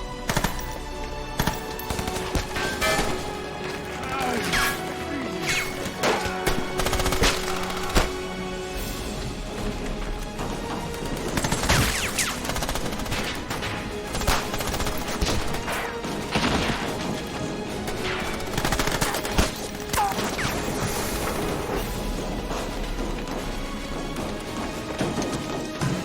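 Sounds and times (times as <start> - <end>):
background music: 0.0 - 26.0
gunshots and machine-gun fire: 0.2 - 0.8, 1.4 - 8.4, 10.7 - 21.8.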